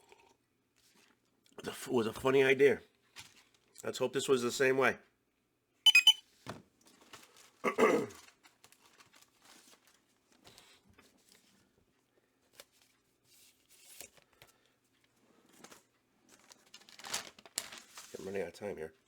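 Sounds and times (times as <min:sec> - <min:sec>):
paper rustling and crinkling: 0:03.2 - 0:03.7, 0:06.9 - 0:07.6, 0:08.2 - 0:11.7, 0:12.4 - 0:18.5.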